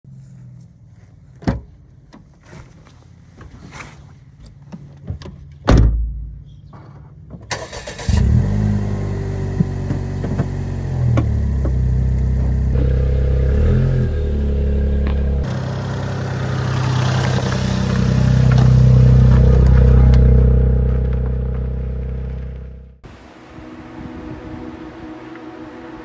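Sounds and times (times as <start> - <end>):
car engine running: 8.4 - 23.0.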